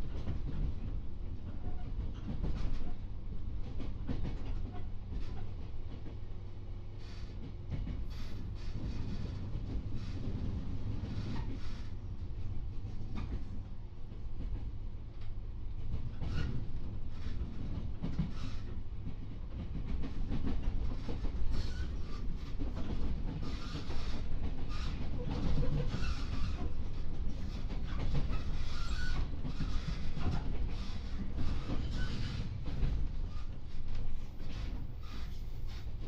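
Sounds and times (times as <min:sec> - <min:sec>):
train wheels rumbling: 0:00.0 - 0:36.0.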